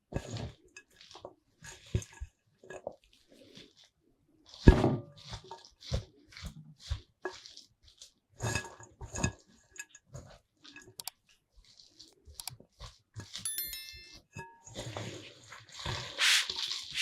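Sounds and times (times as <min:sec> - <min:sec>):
utensils clinking against dishware: 0:13.5 - 0:14.2.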